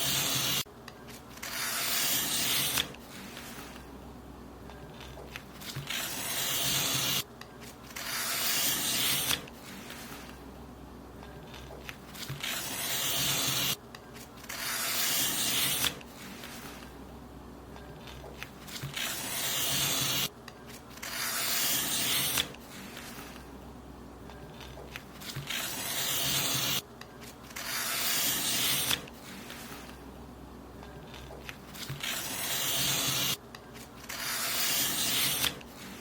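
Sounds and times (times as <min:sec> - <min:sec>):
paper being cut: 0:00.0 - 0:00.6, 0:01.4 - 0:03.8, 0:05.0 - 0:07.2, 0:07.9 - 0:10.3, 0:11.5 - 0:13.8, 0:14.4 - 0:16.8, 0:18.1 - 0:20.3, 0:21.0 - 0:23.4, 0:24.6 - 0:26.8, 0:27.5 - 0:30.0, 0:31.1 - 0:36.0.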